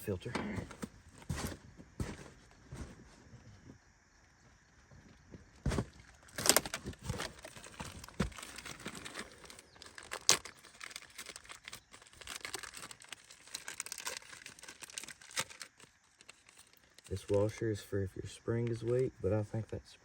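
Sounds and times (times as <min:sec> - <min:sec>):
plastic packaging crinkling and tearing: 0:06.0 - 0:17.6.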